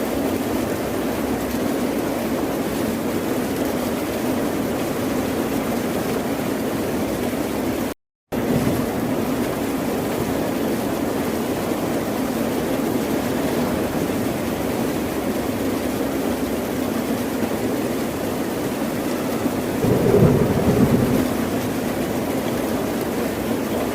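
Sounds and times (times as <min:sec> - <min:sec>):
ocean surf: 0:19.8 - 0:22.4.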